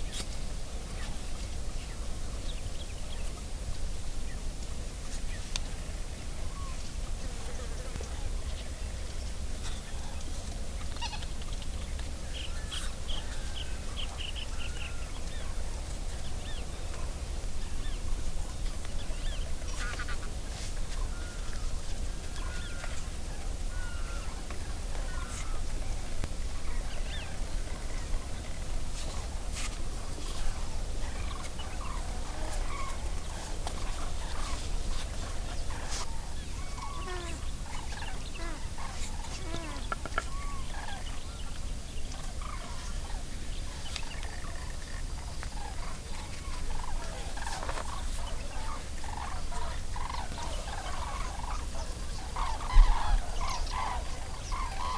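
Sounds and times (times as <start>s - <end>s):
birds chirping: 30.1s - 54.9s.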